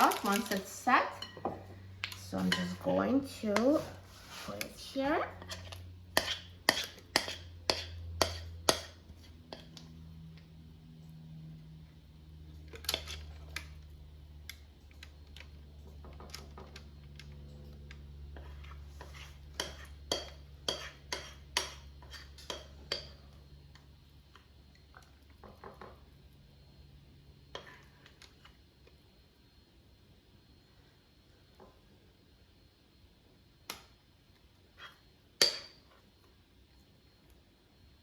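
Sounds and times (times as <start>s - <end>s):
low steady hum: 0.0s - 38.0s
utensil scraping a bowl: 2.4s - 9.8s, 18.3s - 23.2s.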